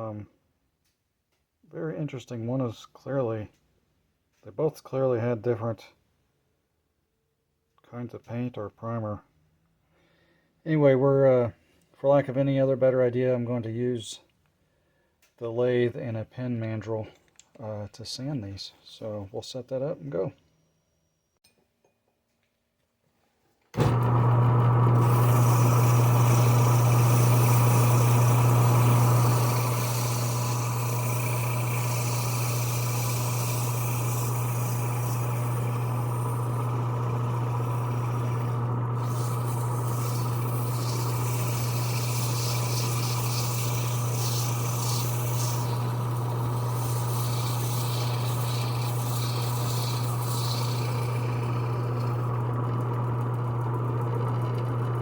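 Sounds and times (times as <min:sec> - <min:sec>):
lathe motor hum: 0:23.8 - 0:55.0
sandpaper rubbing on wood: 0:38.2 - 0:45.8, 0:46.8 - 0:50.8.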